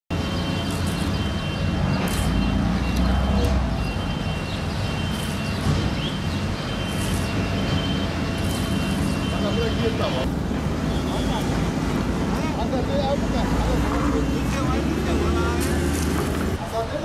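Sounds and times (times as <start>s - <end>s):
heavy engine running: 0.2s - 17.0s.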